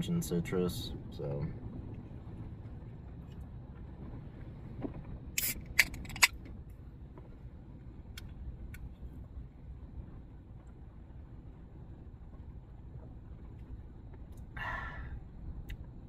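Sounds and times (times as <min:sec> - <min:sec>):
low rumble: 0:00.0 - 0:16.0
drink can opening hiss: 0:05.4 - 0:06.2.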